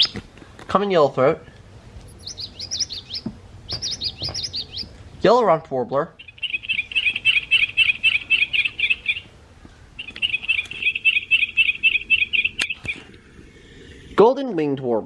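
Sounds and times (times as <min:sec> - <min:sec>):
toy bird song: 0:02.2 - 0:04.9, 0:06.2 - 0:09.3, 0:10.0 - 0:13.1.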